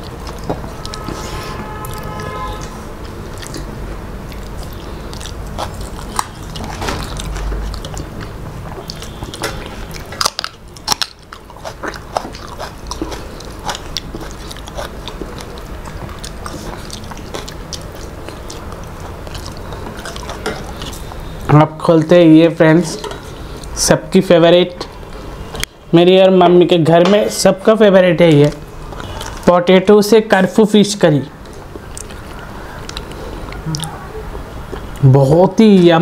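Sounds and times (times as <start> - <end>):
wet chewing and lip smacking: 0.0 - 1.2, 1.8 - 21.5, 28.5 - 29.4, 31.4 - 35.0.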